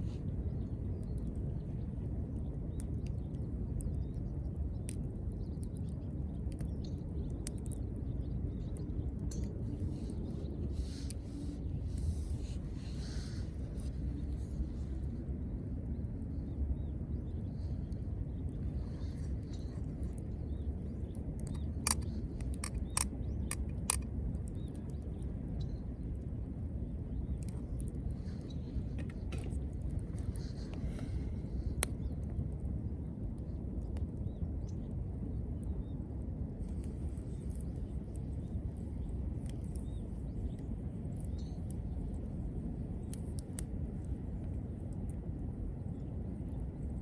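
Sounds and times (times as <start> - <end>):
low rumble: 0.0 - 47.0
wood fire crackling: 17.0 - 47.0.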